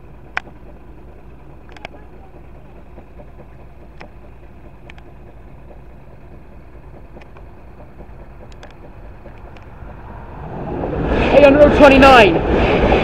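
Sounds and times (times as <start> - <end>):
engines idling rumble: 0.0 - 13.0
sharp high ticks: 2.6 - 10.2.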